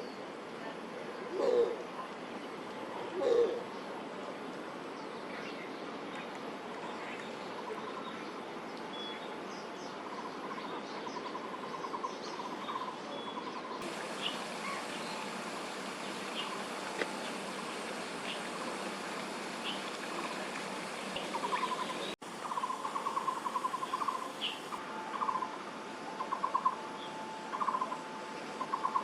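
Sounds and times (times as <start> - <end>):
background hiss: 13.8 - 29.0
bird chirps: 21.2 - 25.5.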